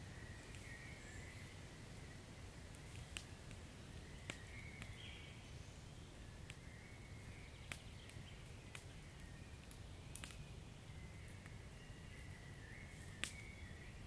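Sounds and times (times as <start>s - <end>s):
wood fire crackling: 0.0s - 13.8s
fire pops: 2.7s - 5.0s, 6.4s - 6.7s, 7.6s - 10.5s, 13.1s - 13.5s.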